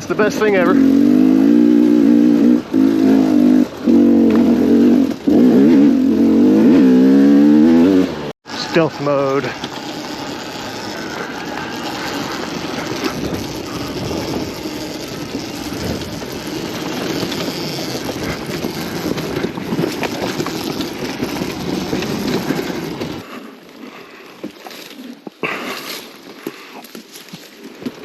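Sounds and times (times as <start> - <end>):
dirt bike engine running: 0.0 - 24.3
rattling and clattering: 9.3 - 23.3.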